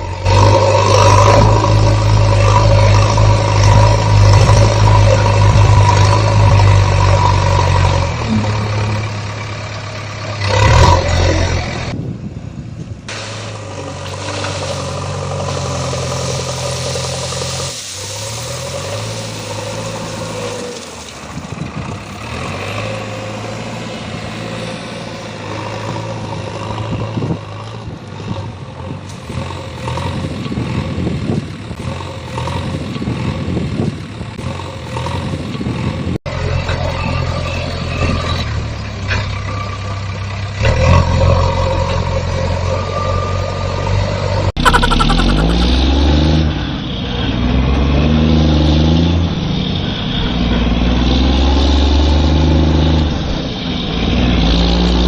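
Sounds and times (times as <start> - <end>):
heavy machinery engine revving: 0.0 - 12.0, 13.4 - 55.0.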